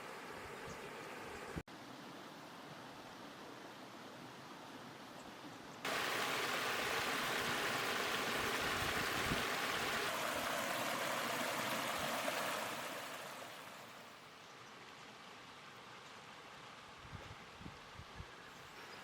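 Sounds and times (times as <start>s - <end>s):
stream water rushing: 5.9s - 14.2s.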